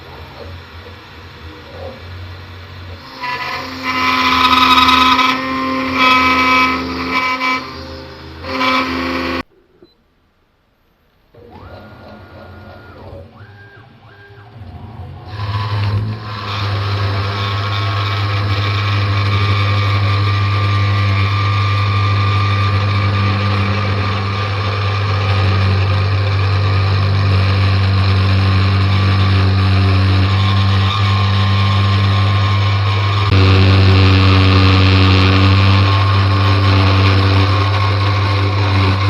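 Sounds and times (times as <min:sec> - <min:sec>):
router motors whining: 0:00.0 - 0:09.5, 0:11.3 - 0:39.0
router running with hum and hiss: 0:00.0 - 0:09.5, 0:11.3 - 0:39.0.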